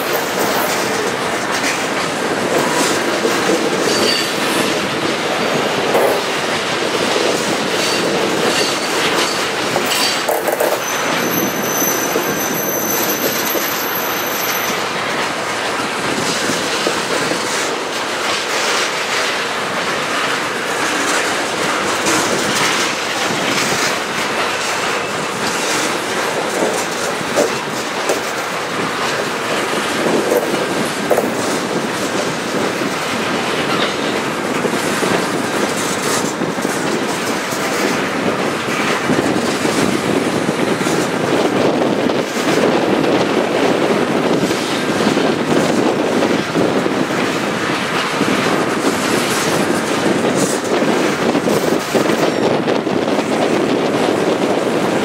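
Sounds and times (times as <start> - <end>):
freight train wheels rumbling: 0.0 - 55.0
wheels clicking over rail joints: 0.0 - 55.0
high wheel squeal: 3.8 - 4.6, 7.9 - 14.8.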